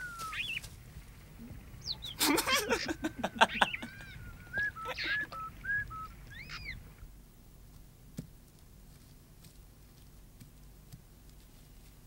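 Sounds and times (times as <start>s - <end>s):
bird calling: 0.0s - 7.1s
men laughing: 2.0s - 5.8s.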